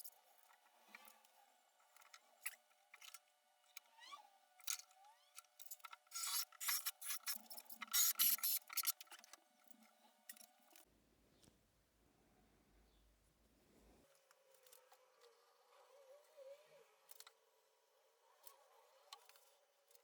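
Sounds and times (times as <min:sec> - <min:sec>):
small clicks: 0:00.0 - 0:11.6, 0:16.2 - 0:17.4, 0:18.3 - 0:20.0.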